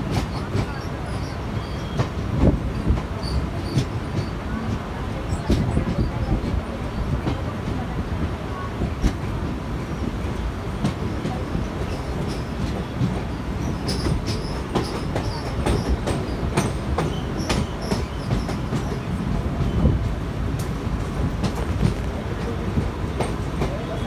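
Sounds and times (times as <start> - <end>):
train coach rumble: 0.0 - 24.0
high wheel squeals: 0.7 - 2.2, 12.0 - 19.0
wheels clicking over rail joints: 10.8 - 19.7.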